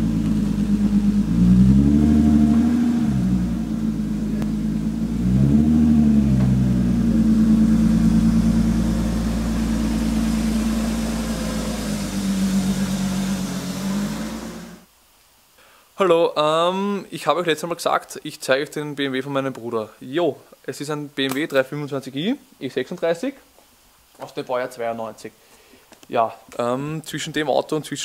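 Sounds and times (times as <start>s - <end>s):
car engine revving: 0.0s - 14.9s.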